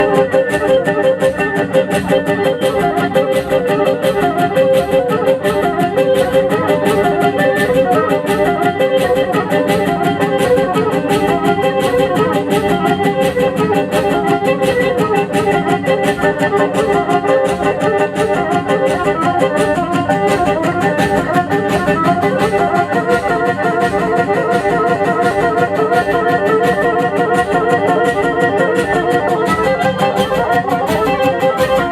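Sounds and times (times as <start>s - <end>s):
bowed fiddle melody: 0.0s - 31.9s
fast dance beat: 27.8s - 31.9s.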